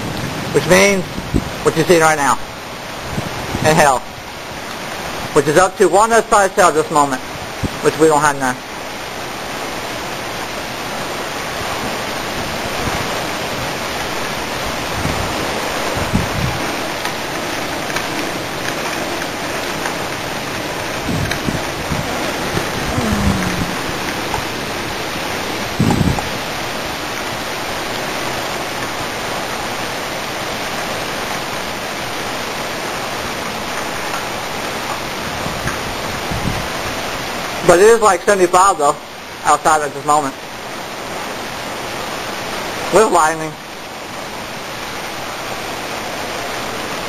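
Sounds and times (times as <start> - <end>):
low wind buffets: 0.0 - 1.8, 2.4 - 5.4, 7.2 - 37.6
heavy wind-driven rain: 0.0 - 47.0.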